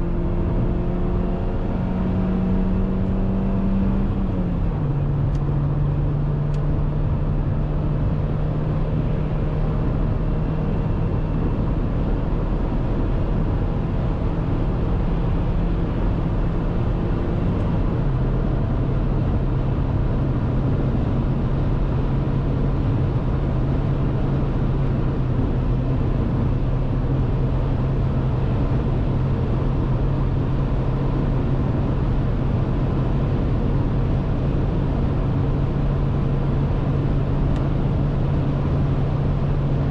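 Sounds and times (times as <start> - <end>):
car engine humming at high revs: 0.0 - 39.9
road noise: 0.0 - 39.9.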